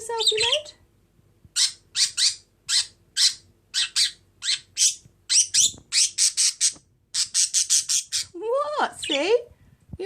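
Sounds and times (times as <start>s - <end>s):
budgerigar chirping: 0.1s - 0.7s, 1.6s - 8.4s.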